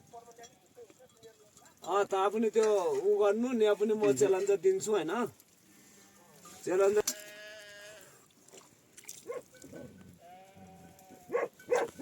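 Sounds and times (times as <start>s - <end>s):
sheep bleating: 6.8s - 8.2s, 10.2s - 11.4s
dog barking: 9.2s - 9.6s, 11.3s - 12.0s.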